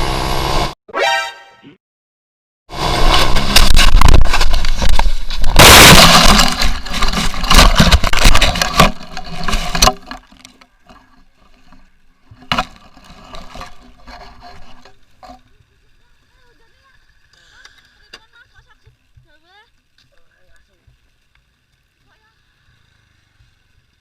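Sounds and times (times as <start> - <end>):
motorcycle crash impacts and scraping: 2.8 - 10.3.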